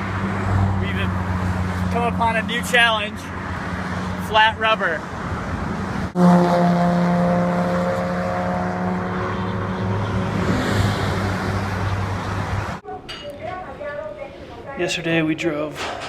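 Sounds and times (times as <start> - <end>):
vehicle engine hum: 0.0 - 12.8
road noise: 0.0 - 16.0.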